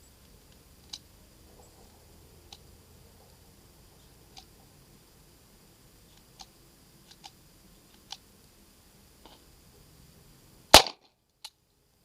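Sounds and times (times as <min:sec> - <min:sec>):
loud gunshot bang: 0:10.7 - 0:11.0
faint pistol clicks: 0:10.8 - 0:11.6.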